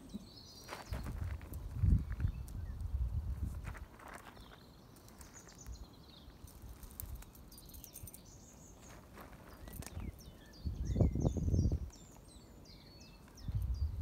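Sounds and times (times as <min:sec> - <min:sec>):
rustles: 0:00.0 - 0:10.6
small birds chirping: 0:00.0 - 0:14.0.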